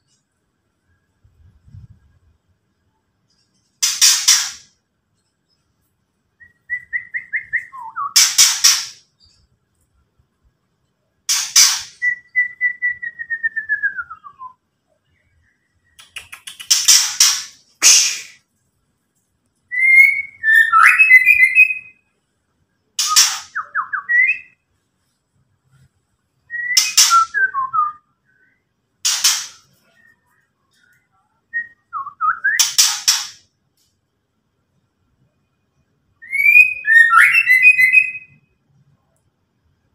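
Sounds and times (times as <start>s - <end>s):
bird harsh rattling call: 3.8s - 4.7s, 8.2s - 9.0s, 11.3s - 12.0s, 16.3s - 18.3s, 29.0s - 29.8s, 32.6s - 33.4s
bird whistled notes: 36.2s - 38.4s.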